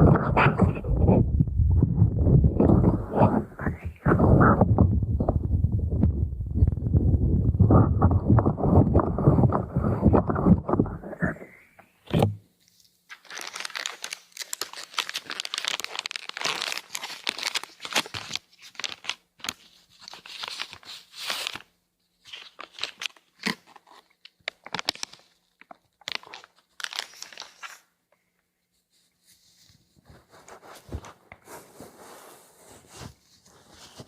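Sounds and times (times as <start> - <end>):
packaging crinkling: 13.1 - 21.7, 22.3 - 27.8.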